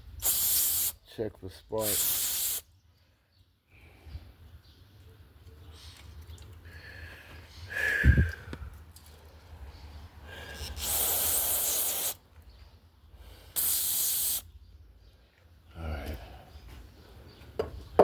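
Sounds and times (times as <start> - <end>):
aerosol can spraying: 0.2 - 1.0, 1.8 - 2.6, 10.6 - 12.2, 13.6 - 14.4.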